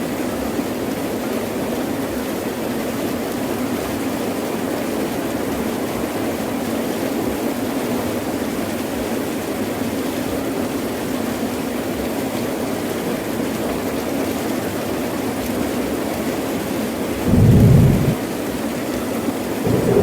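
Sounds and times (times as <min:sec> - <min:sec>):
heavy rain pouring: 0:17.2 - 0:18.2, 0:19.7 - 0:20.0.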